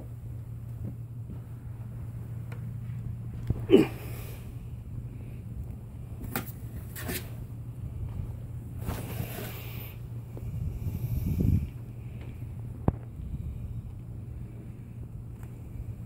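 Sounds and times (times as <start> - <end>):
steady low hum: 0.0 - 16.0
kittens scuffling: 8.1 - 10.1.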